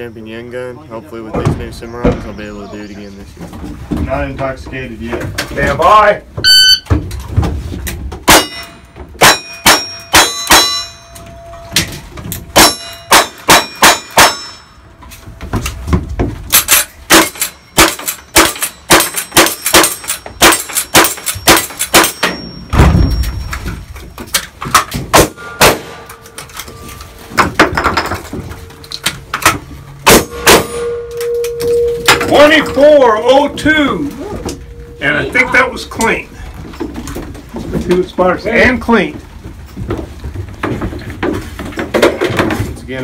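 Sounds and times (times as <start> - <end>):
steel targets ringing: 8.3 - 14.9, 16.6 - 23.7, 25.3 - 27.3, 28.6 - 36.5.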